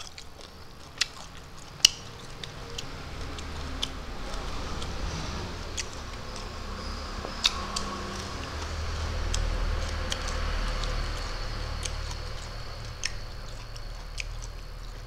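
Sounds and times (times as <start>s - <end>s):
chewing clicks and smacks: 0.0s - 15.0s
low steady hum: 0.0s - 15.0s.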